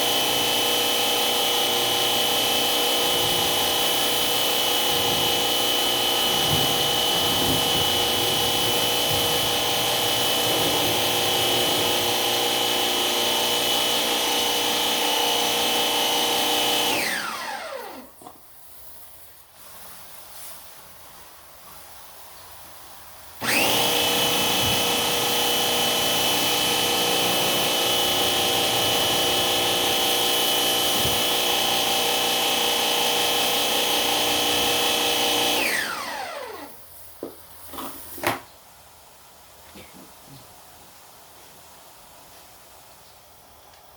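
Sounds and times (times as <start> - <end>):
electric motor tool whining: 0.0 - 18.2, 23.4 - 36.8.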